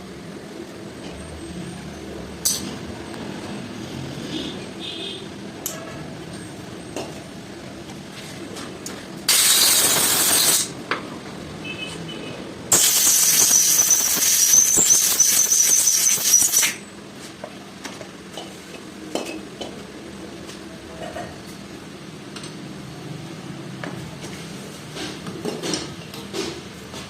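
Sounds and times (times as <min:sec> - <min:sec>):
loud hissing bursts: 0:09.3 - 0:10.8, 0:12.7 - 0:16.8.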